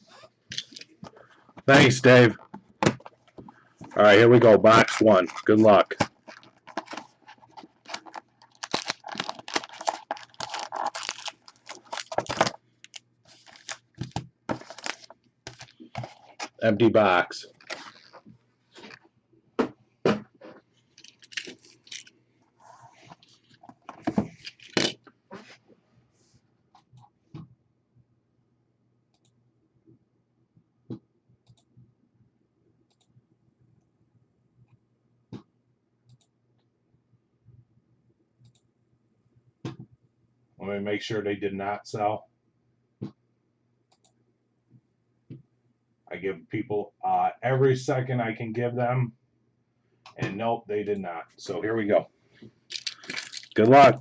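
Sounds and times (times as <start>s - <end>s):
cardboard and wrapping tearing: 4.4s - 15.7s, 17.6s - 18.2s, 24.4s - 25.0s, 52.7s - 53.9s.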